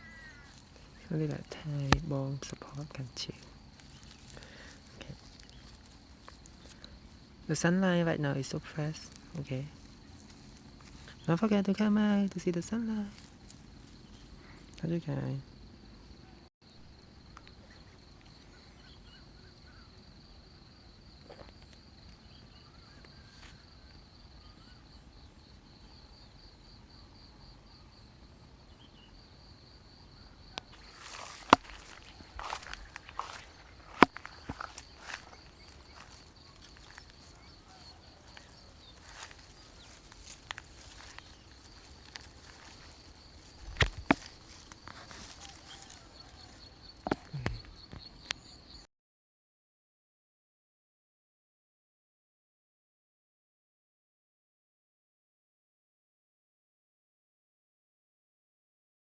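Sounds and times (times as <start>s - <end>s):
faint bird calls: 0.0s - 1.1s, 17.5s - 20.0s, 22.2s - 25.0s, 30.2s - 40.0s
rustling: 0.0s - 7.4s, 8.6s - 11.3s, 30.7s - 47.6s
insect chirping: 0.0s - 48.9s.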